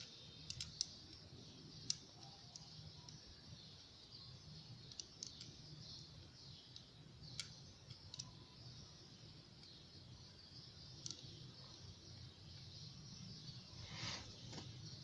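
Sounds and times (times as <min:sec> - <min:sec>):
small clicks of tools on lock: 0:00.0 - 0:01.2
faint steady hiss: 0:00.0 - 0:15.0.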